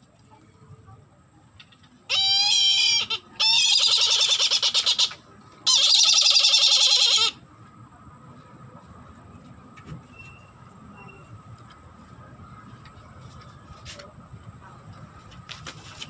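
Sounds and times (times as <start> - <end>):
bird of prey quavering cries: 2.1 - 7.4.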